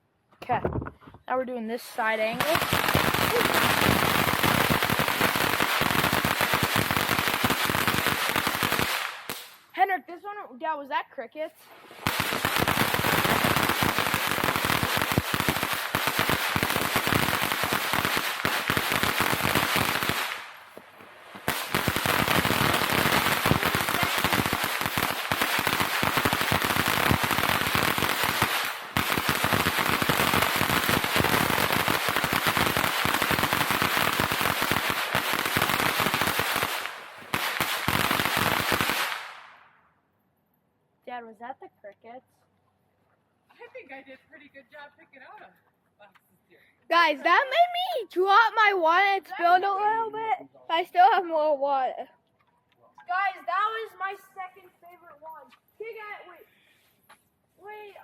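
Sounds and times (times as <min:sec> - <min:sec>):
fireworks crackling: 0:01.4 - 0:09.8, 0:11.6 - 0:39.8, 0:46.9 - 0:49.7.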